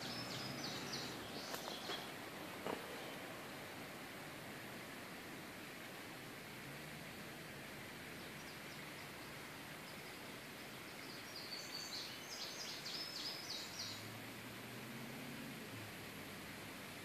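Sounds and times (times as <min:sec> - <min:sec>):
small bird chirping: 0:00.0 - 0:02.1, 0:10.9 - 0:14.0
faint hiss: 0:00.0 - 0:17.0.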